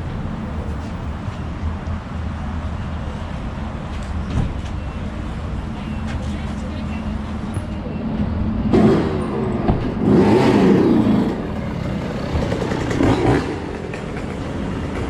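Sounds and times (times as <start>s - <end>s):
vehicle engine revving: 8.7s - 15.0s.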